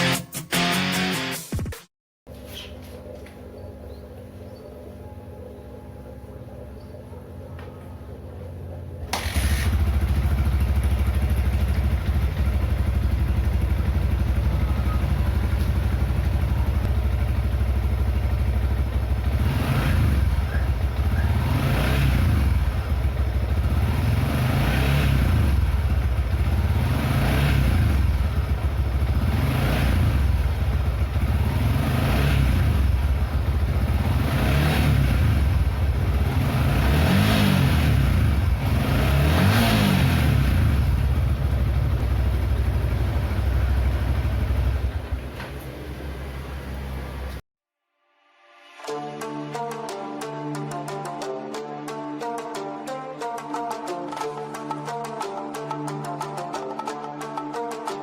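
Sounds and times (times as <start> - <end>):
motorcycle engine idling and revving: 3.0 - 47.4.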